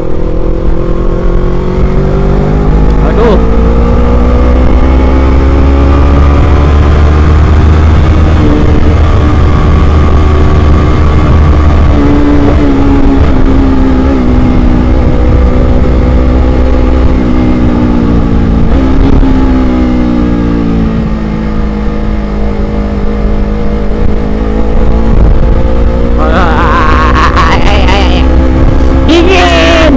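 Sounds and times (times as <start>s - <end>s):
motorcycle engine running: 0.0s - 29.9s.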